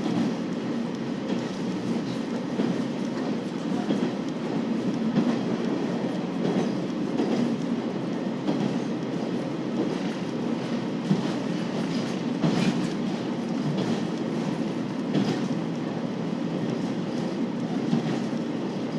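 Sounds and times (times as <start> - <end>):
train wheels rumbling on rails: 0.0 - 18.9
faint track clicks: 11.1 - 15.9.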